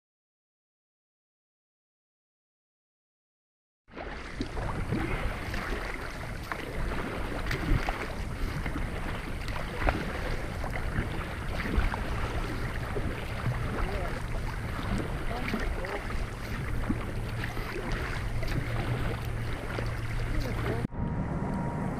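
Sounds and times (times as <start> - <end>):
water splashing around a kayak: 3.9 - 20.9
wind rumble on microphone: 4.3 - 21.9.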